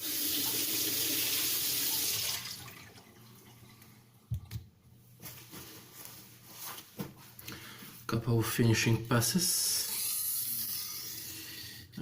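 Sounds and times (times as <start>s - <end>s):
water running from a tap: 0.0s - 3.6s.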